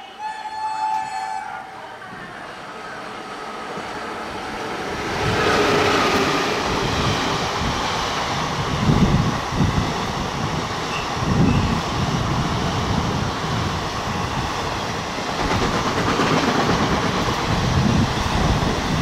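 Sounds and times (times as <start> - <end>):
train horn: 0.0 - 2.3
train passing on track: 0.0 - 19.0.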